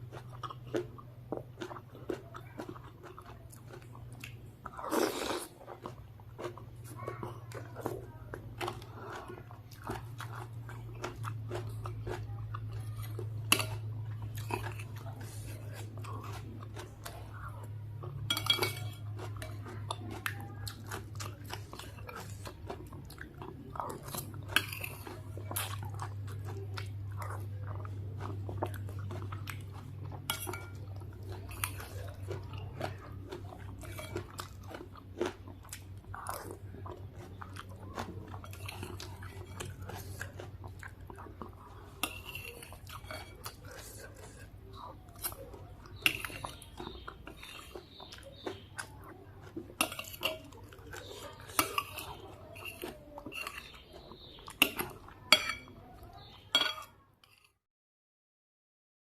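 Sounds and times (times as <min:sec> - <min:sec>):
chewing and crunching food: 0:00.0 - 0:57.6.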